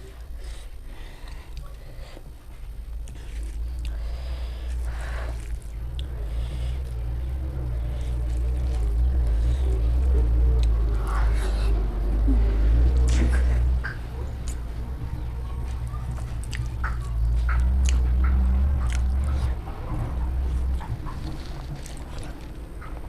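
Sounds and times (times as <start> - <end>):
chewing and biting food: 0.0 - 23.0
steady low rumble: 0.0 - 23.0.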